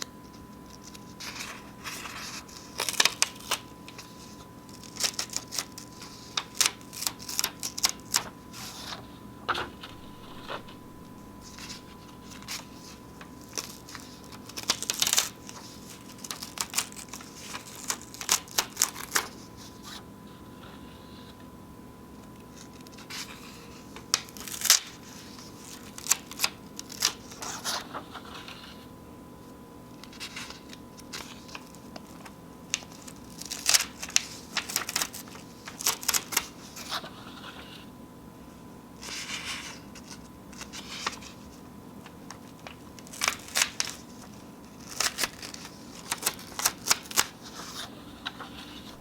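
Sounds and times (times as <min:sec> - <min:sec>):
paper tearing and crinkling: 0:09.5 - 0:19.2, 0:43.0 - 0:44.2, 0:44.8 - 0:49.0.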